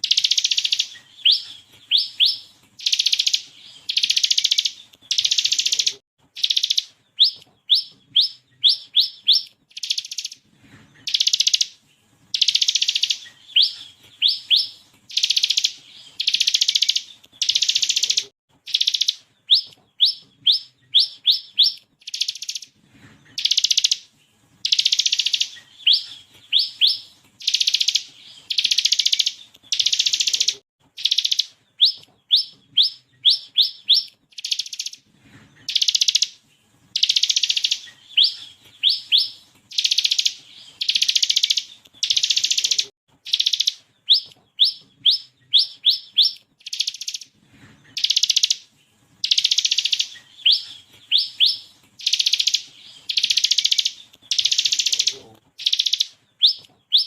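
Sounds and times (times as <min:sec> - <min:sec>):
buzzy rattling bird call: 0:00.0 - 0:07.8, 0:09.0 - 0:10.4, 0:11.0 - 0:20.2, 0:24.6 - 0:32.0, 0:35.6 - 0:44.2, 0:49.2 - 0:57.0
bird singing sharp upswept notes: 0:49.2 - 0:57.0.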